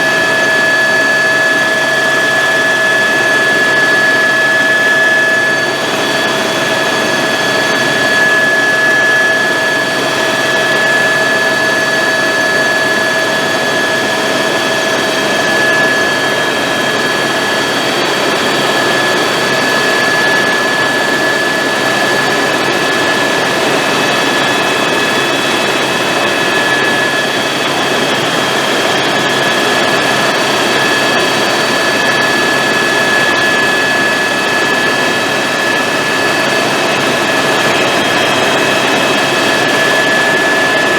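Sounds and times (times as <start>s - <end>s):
helicopter turbine whine: 0.0s - 40.9s.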